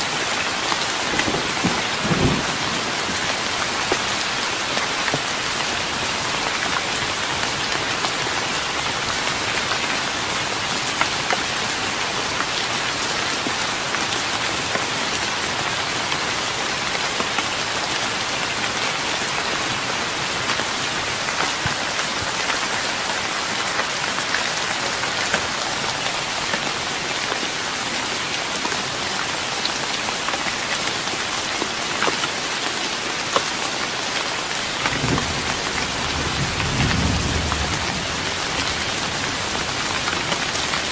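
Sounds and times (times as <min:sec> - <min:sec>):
rain pattering on wooden deck: 0:00.0 - 0:40.9.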